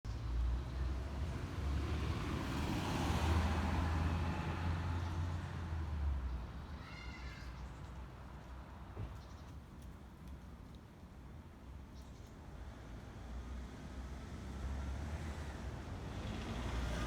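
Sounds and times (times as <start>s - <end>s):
passing vehicle rumble: 13.9s - 17.0s.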